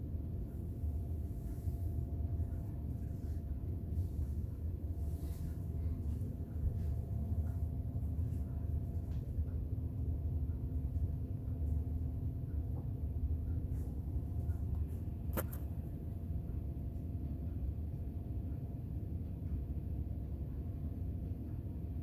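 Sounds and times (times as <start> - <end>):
ceiling fan running: 0.0 - 22.0
sharp click: 15.3 - 15.8.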